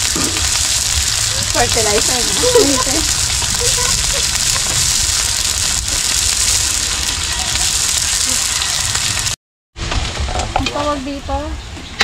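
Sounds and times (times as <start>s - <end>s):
cabbage sizzling in a wok: 0.0s - 9.4s.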